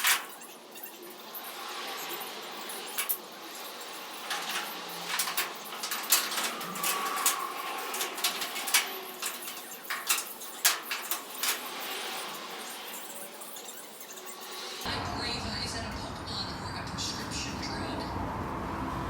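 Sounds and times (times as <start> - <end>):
small metal parts clicking: 0.0 - 14.9.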